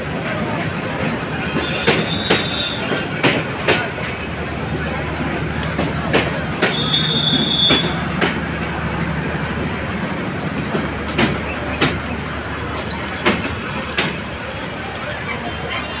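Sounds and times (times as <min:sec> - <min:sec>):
train rumbling: 0:00.0 - 0:16.0
wheels clanking over rail joints: 0:00.1 - 0:16.0
high wheel squeal: 0:01.5 - 0:04.3, 0:06.6 - 0:08.0, 0:09.3 - 0:10.2, 0:11.4 - 0:16.0.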